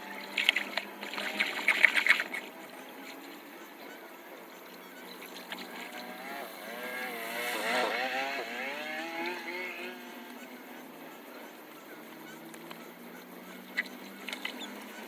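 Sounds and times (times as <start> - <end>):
vehicle engine passing by: 5.6 - 10.8.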